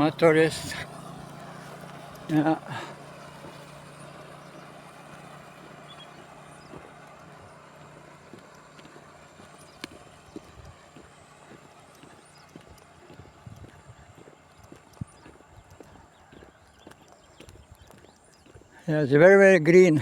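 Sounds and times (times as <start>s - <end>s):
distant motorcycle engine: 0.0s - 20.0s
faint ticks and taps: 6.1s - 18.7s.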